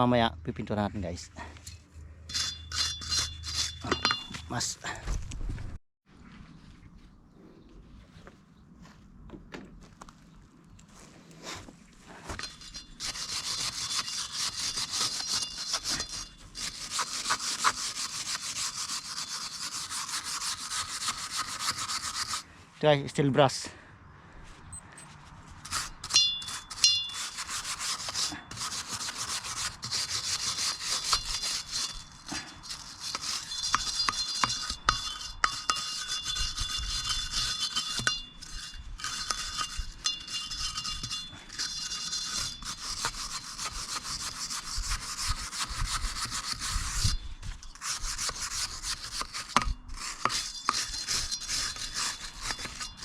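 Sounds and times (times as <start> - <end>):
wire brush scraping metal: 1.6 - 4.4, 12.4 - 22.4, 25.6 - 53.0.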